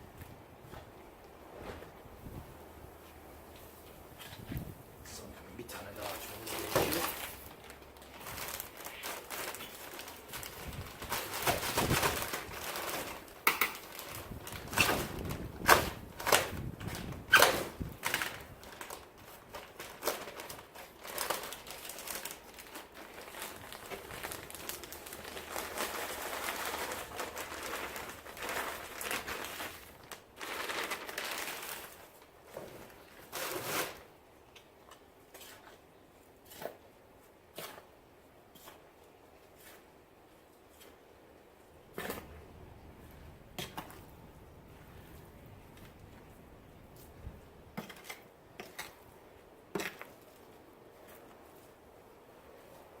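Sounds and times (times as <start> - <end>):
plastic bag crinkling: 5.8 - 34.1.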